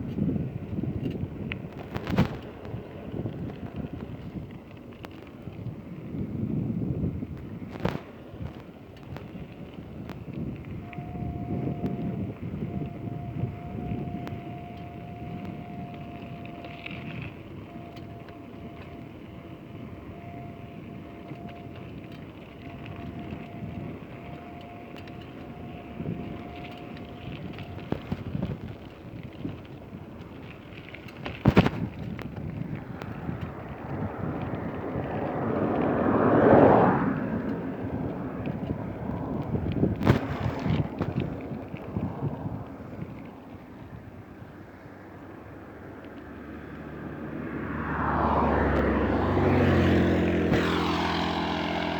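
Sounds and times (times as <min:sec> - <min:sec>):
road rumble: 0:00.0 - 0:51.9
wind buffeting microphone: 0:00.0 - 0:51.9
engine approaching with whoosh: 0:31.6 - 0:51.9.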